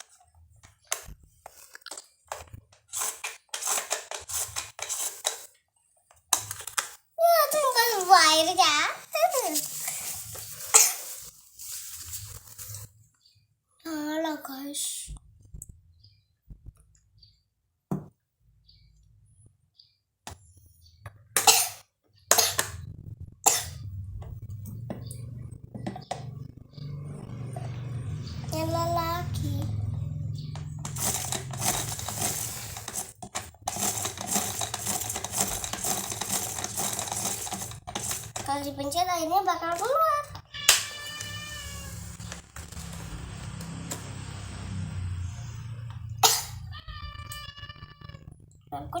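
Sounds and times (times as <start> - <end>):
plastic toy clicking and rustling: 0.7 - 8.6, 30.8 - 40.0
toy washing machine motor humming: 2.3 - 5.6, 6.2 - 12.2, 27.4 - 40.4, 41.0 - 46.8.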